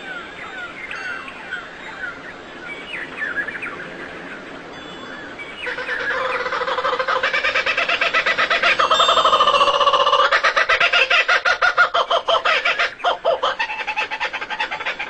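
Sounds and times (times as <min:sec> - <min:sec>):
birds chirping and twittering: 0:00.0 - 0:15.0
pulsing bird call: 0:05.6 - 0:15.0.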